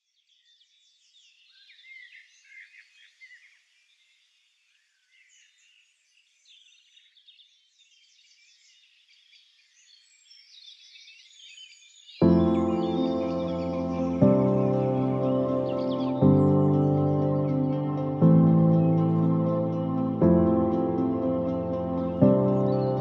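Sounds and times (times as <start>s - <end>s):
birds chirping: 0.2s - 23.0s
loud music: 12.2s - 23.0s.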